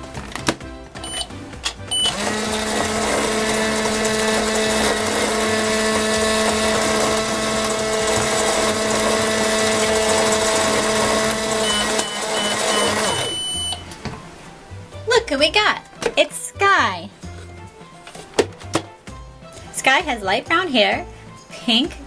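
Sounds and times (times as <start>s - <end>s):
short electronic beeps: 1.0s - 1.3s, 1.9s - 2.2s, 11.6s - 13.9s
toy microwave humming: 1.9s - 13.8s.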